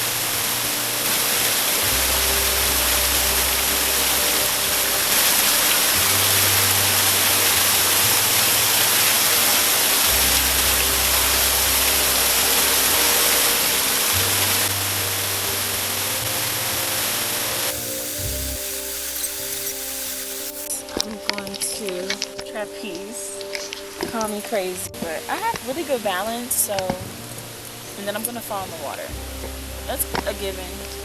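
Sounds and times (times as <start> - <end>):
loud rushing water: 0.0 - 22.4
background music with bass: 0.0 - 31.0.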